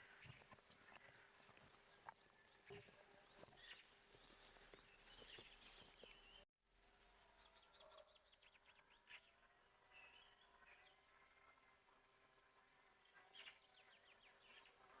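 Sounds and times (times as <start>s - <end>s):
birds chirping and trilling: 0.0s - 6.4s.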